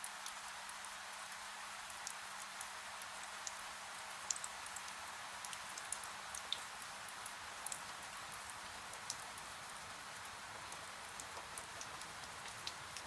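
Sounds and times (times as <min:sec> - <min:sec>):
falling rain hiss: 0:00.0 - 0:13.0
raindrops ticking on glass: 0:04.2 - 0:13.0.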